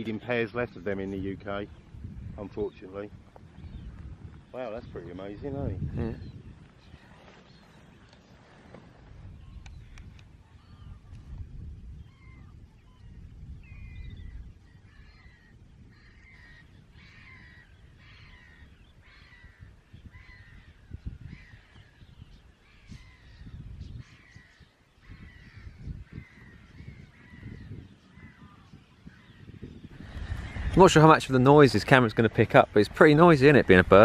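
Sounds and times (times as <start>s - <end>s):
marsh birds calling: 0.0s - 34.0s
wind rumbling on microphone: 0.0s - 34.0s.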